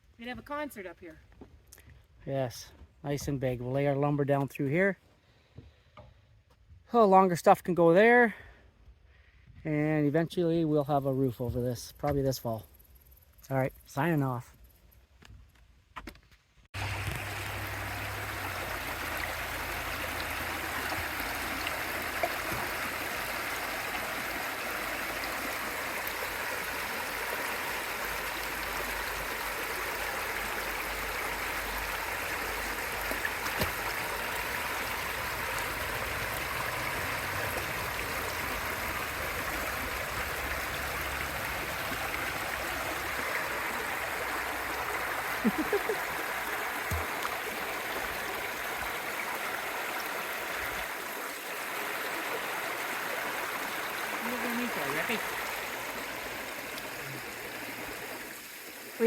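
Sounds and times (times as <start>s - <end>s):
creek water flowing: 16.8s - 59.0s.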